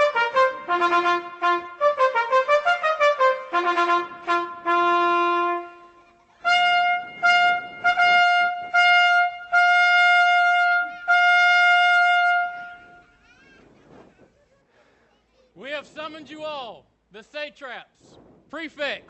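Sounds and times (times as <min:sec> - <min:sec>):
trumpet fanfare: 0:00.0 - 0:13.1.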